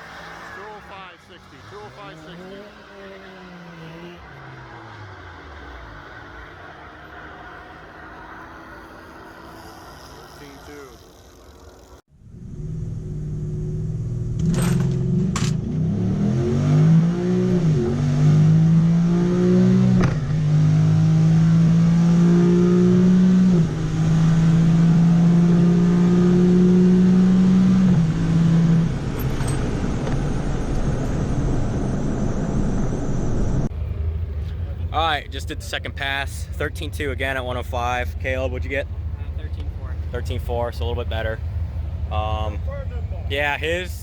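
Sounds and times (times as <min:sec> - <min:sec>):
truck engine at full throttle: 0:12.3 - 0:36.9.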